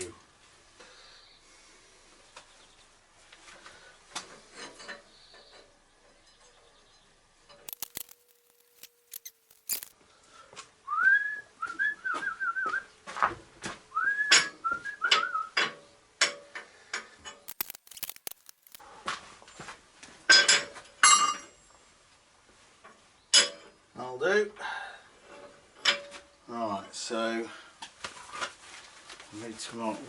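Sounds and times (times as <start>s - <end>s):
metal pieces clanking: 7.7s - 9.9s, 17.5s - 18.8s
person whistling: 10.9s - 12.9s, 14.0s - 15.5s.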